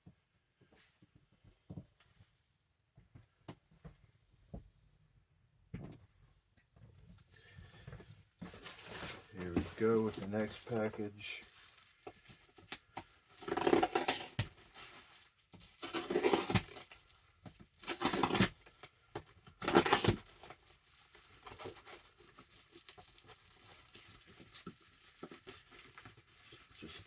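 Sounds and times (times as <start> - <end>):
wrapping crinkling: 8.4 - 18.9, 19.5 - 27.0
package wrapping ripping: 8.5 - 17.2, 17.8 - 18.9, 19.5 - 27.0.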